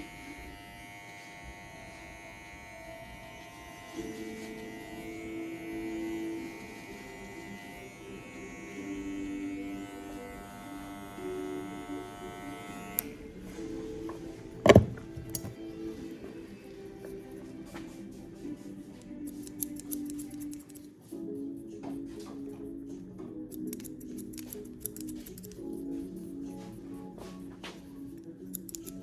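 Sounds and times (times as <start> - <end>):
hair clippers buzzing: 0.0 - 13.2, 14.7 - 15.6
background music: 0.0 - 29.0.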